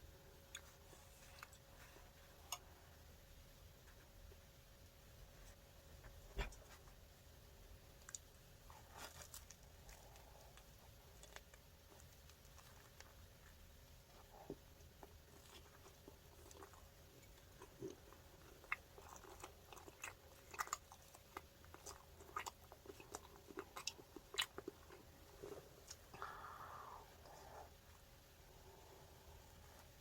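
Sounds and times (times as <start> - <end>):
crisp crunches: 8.0 - 13.2
chewing: 8.0 - 26.3.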